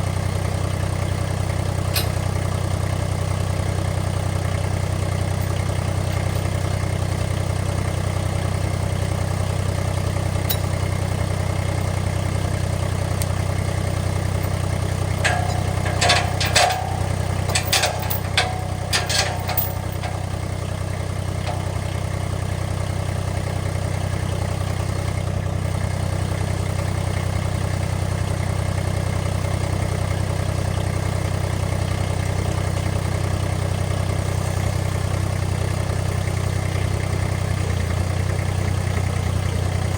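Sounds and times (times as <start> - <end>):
engine idling: 0.0 - 39.9
clanks and knocks: 2.0 - 2.2, 5.4 - 6.6, 10.5 - 10.8, 14.2 - 20.5, 21.4 - 22.0.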